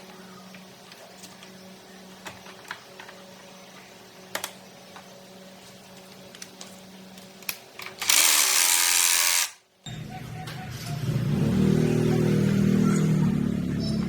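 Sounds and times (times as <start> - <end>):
motorcycle engine starting: 10.7 - 14.0.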